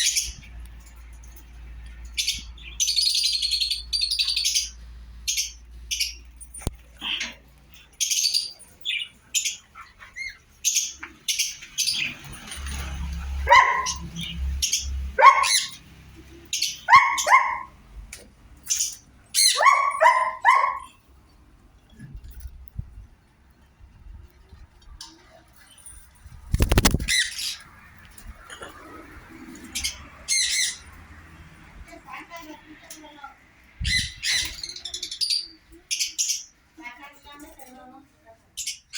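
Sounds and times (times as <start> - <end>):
parrots chirping and calling: 0.0 - 0.5, 2.0 - 12.7, 13.3 - 17.8, 18.6 - 21.0, 26.5 - 31.2, 33.8 - 36.7.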